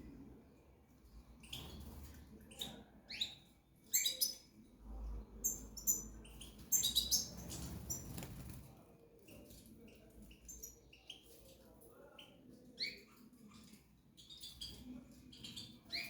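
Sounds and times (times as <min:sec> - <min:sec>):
small birds chirping: 0:01.0 - 0:16.0
wings flapping in cage: 0:07.4 - 0:08.8.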